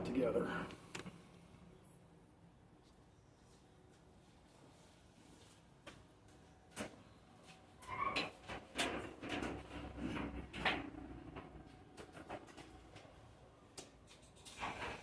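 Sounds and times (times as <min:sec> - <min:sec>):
wiring scraping and rustling: 0:07.8 - 0:13.2, 0:13.8 - 0:15.0.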